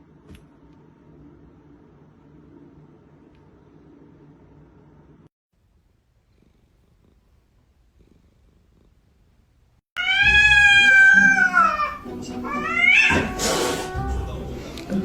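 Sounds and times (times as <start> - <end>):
cat meowing: 10.0 - 14.4.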